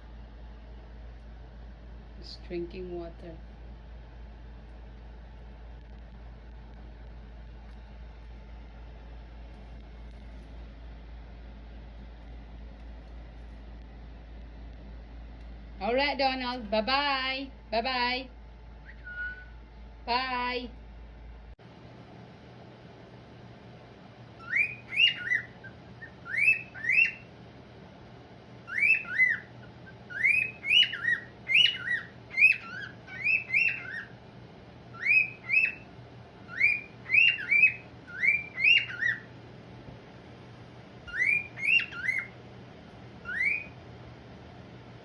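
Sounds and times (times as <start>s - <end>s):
cockatiel chirping: 18.8s - 19.6s, 24.4s - 27.3s, 28.7s - 34.2s, 34.9s - 39.3s, 41.1s - 42.4s, 43.2s - 43.8s.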